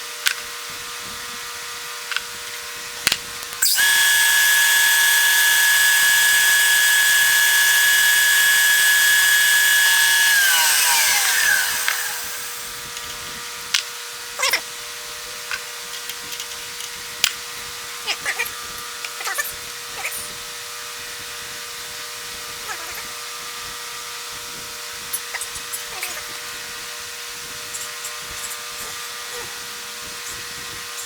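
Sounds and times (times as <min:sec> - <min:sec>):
clicks: 0:03.4 - 0:12.7
low machine hum: 0:03.6 - 0:12.8
power tool motor whining: 0:03.6 - 0:13.0.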